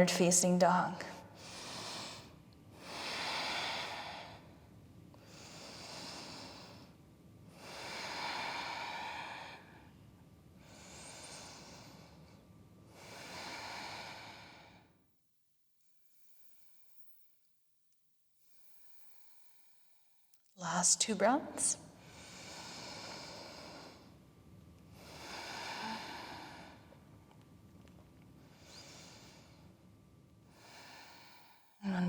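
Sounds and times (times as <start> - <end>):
woman breathing deeply: 1.2 - 15.0, 21.9 - 24.2, 24.9 - 27.0, 28.4 - 29.8, 30.5 - 31.8.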